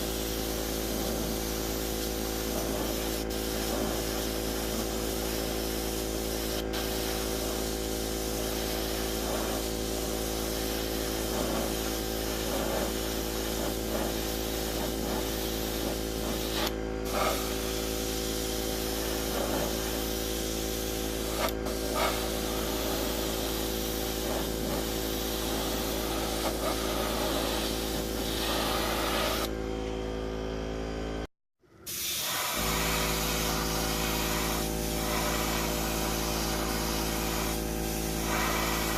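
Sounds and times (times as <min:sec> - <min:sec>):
airbrush spraying hiss: 0:00.0 - 0:29.5, 0:31.9 - 0:38.9
constant hum: 0:08.5 - 0:18.2, 0:18.8 - 0:31.2.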